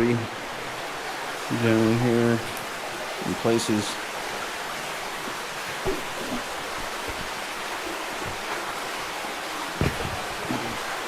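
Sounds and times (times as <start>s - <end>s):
creek rushing through a cave: 0.0s - 11.0s
soft low thumps: 9.8s - 10.4s.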